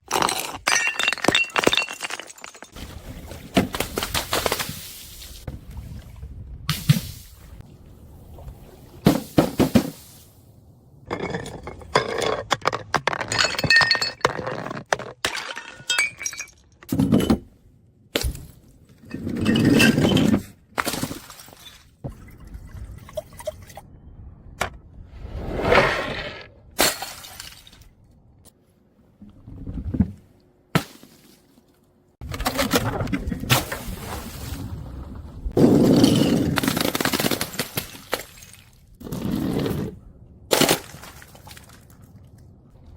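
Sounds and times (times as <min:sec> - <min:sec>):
glass bottles breaking: 0:00.1 - 0:02.8, 0:11.1 - 0:14.6, 0:15.2 - 0:16.7.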